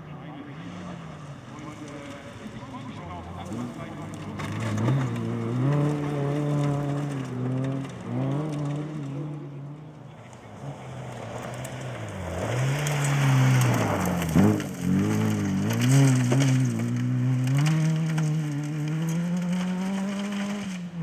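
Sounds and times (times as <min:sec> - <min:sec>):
car engine revving: 0:00.0 - 0:21.0
gravel hissing under tyres: 0:10.3 - 0:21.0.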